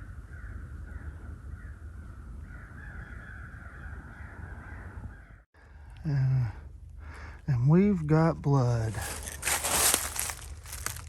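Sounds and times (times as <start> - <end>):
crows cawing: 2.5 - 5.4.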